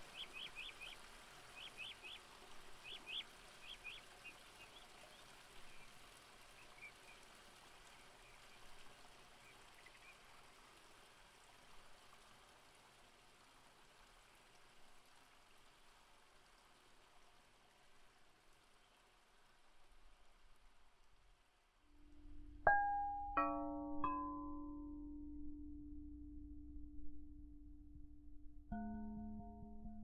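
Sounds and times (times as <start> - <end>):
faint steady hiss: 0.0 - 27.5
small bird chirping: 0.1 - 1.0, 1.6 - 2.2, 2.8 - 5.9.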